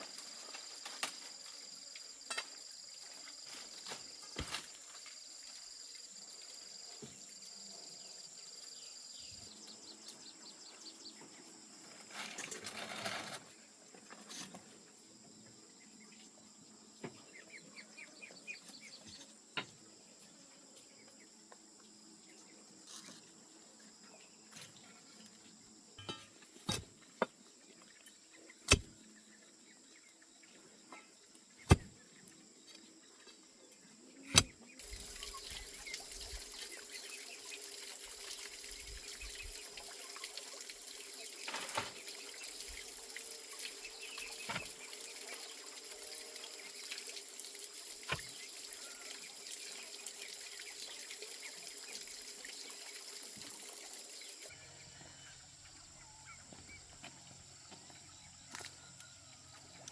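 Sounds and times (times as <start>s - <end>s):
running water: 34.3s - 54.5s.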